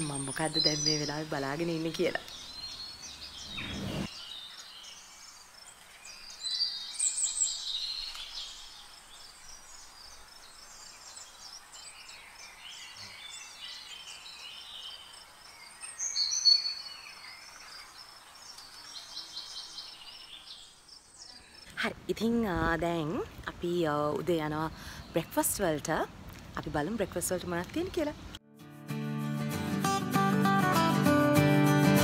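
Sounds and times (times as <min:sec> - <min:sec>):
birds chirping and trilling: 0:00.0 - 0:21.7.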